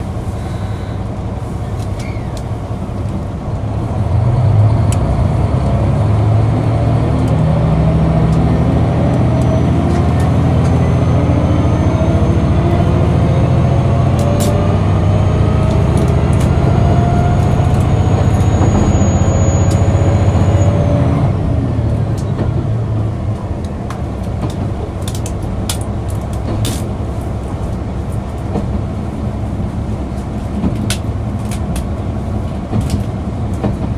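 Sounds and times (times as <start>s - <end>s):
diesel railcar engine pulling: 0.0s - 33.9s
whine rising in pitch: 4.1s - 21.9s.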